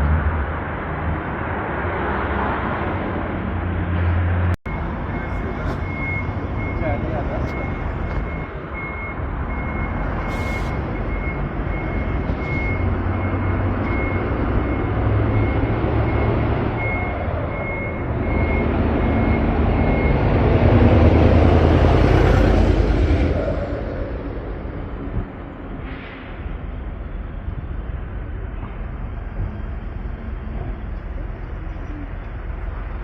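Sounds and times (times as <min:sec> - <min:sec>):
vehicle engine running: 0:04.6 - 0:22.8
high repeating beep: 0:04.7 - 0:20.3.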